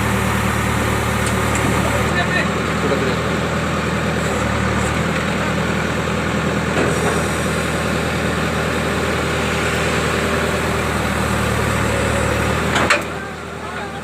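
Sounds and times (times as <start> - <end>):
diesel engine droning: 0.0 - 14.0.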